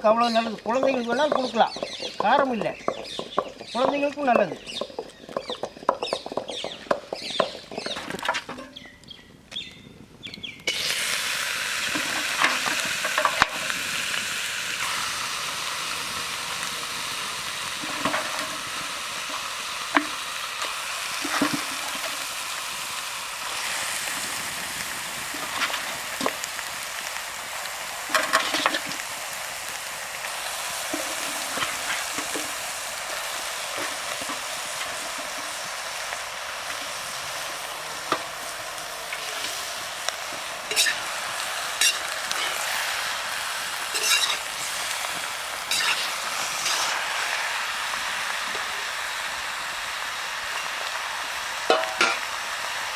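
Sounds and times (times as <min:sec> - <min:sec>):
food sizzling in hot oil: 0:00.0 - 0:52.9
ladle scraping and clinking: 0:40.7 - 0:41.1, 0:43.9 - 0:44.5, 0:45.7 - 0:46.9.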